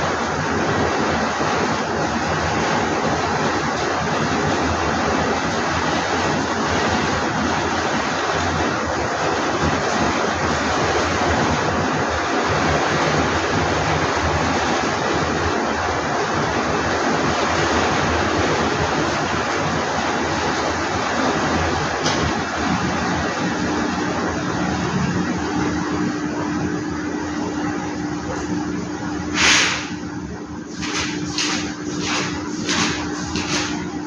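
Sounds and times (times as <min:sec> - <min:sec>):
heavy rain pouring: 0:00.0 - 0:26.8.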